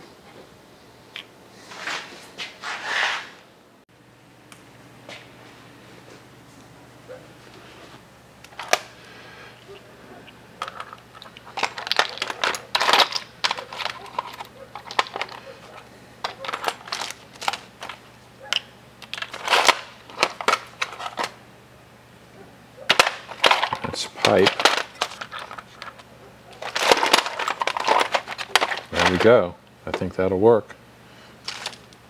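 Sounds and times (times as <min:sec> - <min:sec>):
metal fittings clinking and rattling: 0:10.6 - 0:18.0.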